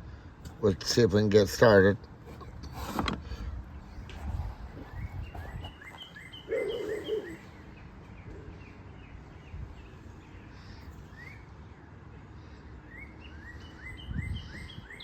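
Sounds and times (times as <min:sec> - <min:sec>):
small birds chirping: 0:03.9 - 0:11.6.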